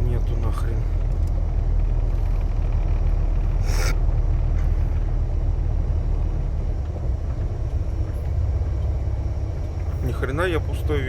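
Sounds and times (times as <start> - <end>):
truck diesel engine idling: 0.0 - 11.0
short hiss: 3.6 - 4.0.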